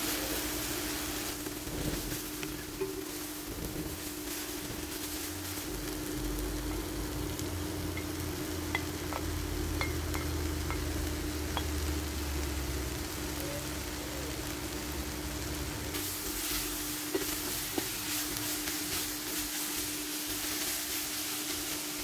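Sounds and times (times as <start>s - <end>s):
vegetables sizzling in a pot: 0.0s - 22.0s
wooden spoon stirring a pot: 1.6s - 5.6s, 16.0s - 22.0s.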